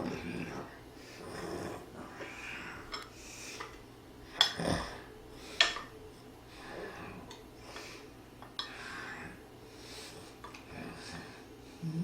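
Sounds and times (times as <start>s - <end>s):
breathing: 1.0s - 3.8s, 6.5s - 11.8s.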